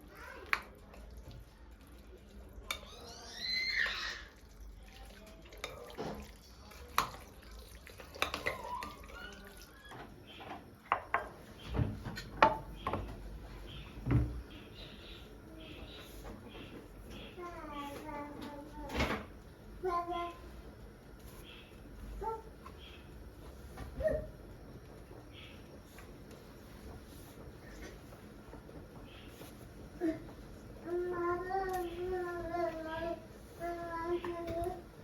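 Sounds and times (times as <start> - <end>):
water running and dripping: 0.0 - 10.3
dishes and utensils clinking: 8.0 - 9.7.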